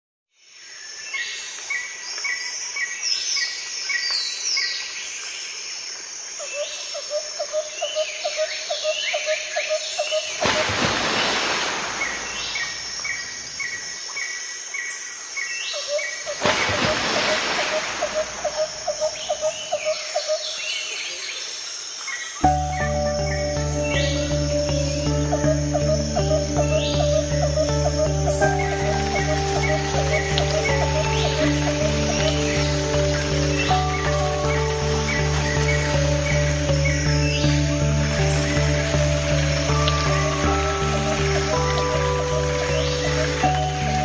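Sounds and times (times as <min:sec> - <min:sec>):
birds chirping and calling: 0:15.4 - 0:21.3, 0:22.4 - 0:44.0.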